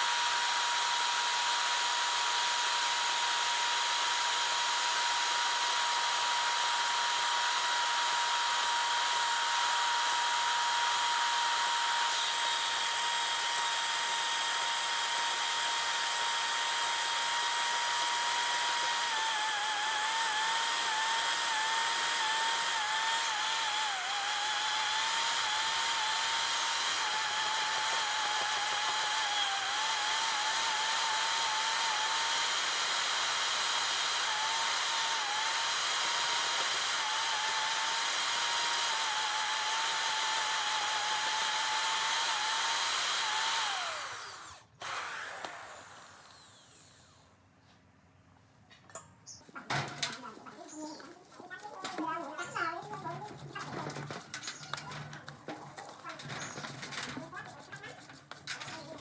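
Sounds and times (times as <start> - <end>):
power tool motor whining: 0.0 - 47.4, 49.5 - 59.0.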